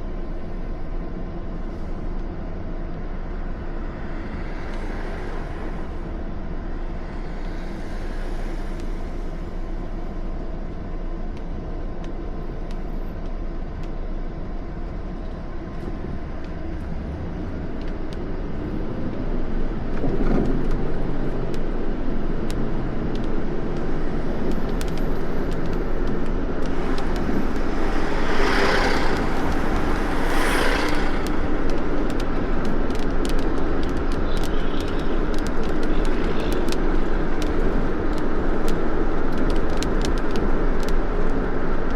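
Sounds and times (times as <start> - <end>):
car road noise rumble: 0.0 - 41.9
whooshing swells: 26.6 - 32.2.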